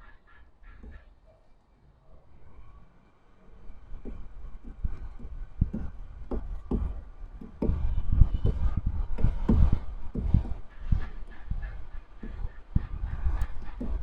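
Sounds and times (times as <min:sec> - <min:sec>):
dull knocks and thumps: 0:00.8 - 0:01.0, 0:03.9 - 0:14.0.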